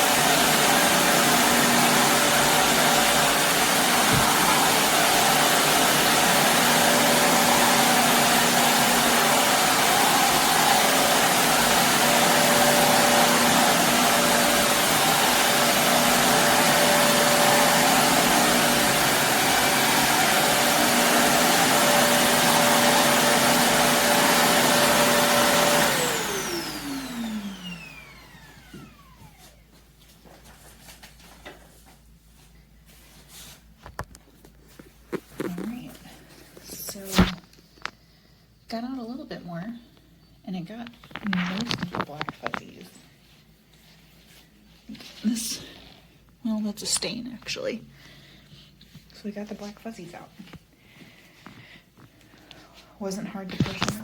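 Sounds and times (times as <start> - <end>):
vacuum cleaner running on carpet: 0.0 - 29.6, 53.5 - 54.0
vacuum motor spinning down: 0.0 - 29.6.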